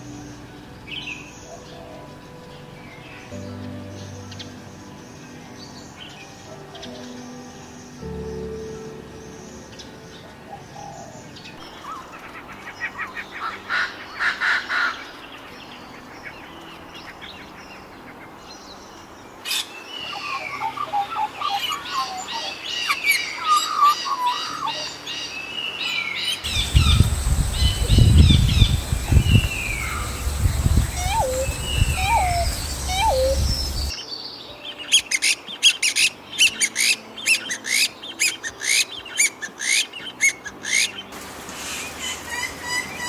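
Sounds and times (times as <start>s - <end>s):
small birds chirping: 0.0s - 43.0s
loud low rumble: 26.5s - 33.9s.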